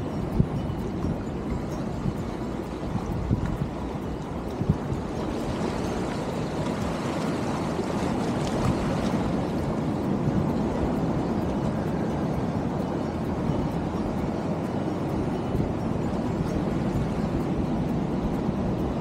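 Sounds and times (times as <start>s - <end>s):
sea water surging among rocks: 0.0s - 19.0s
wind buffeting microphone: 0.0s - 19.0s.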